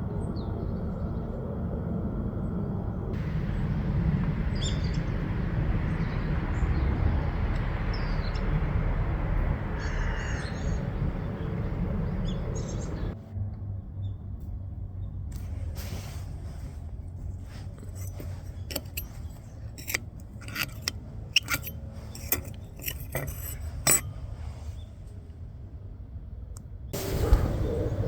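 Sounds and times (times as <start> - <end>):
steady low rumbling: 0.0 - 28.0
small birds chirping: 4.4 - 13.2.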